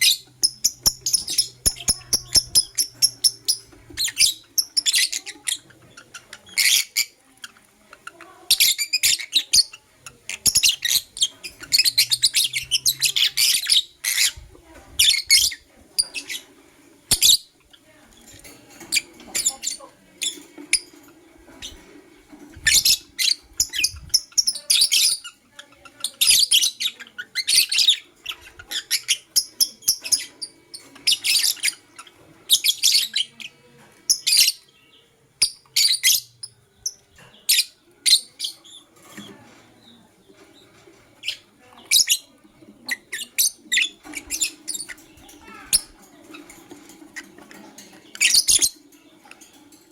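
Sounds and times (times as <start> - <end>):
lovebird chirping: 0.0 - 7.2, 8.2 - 14.4, 17.1 - 18.0, 22.5 - 33.5, 34.1 - 39.2, 48.1 - 49.4.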